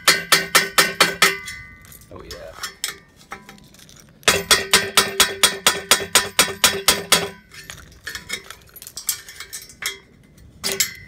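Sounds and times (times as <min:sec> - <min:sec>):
hammer striking metal: 0:00.0 - 0:01.8, 0:04.3 - 0:07.5.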